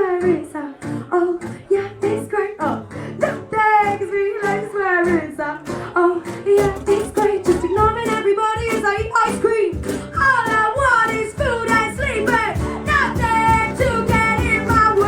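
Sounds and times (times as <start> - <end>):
person singing: 0.0 - 15.0
strummed acoustic guitar: 0.0 - 15.0.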